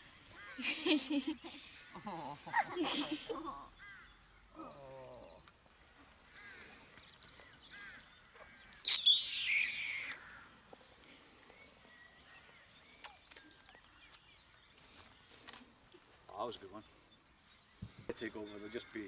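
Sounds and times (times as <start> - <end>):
high animal chirps and squeaks: 8.8 - 10.3.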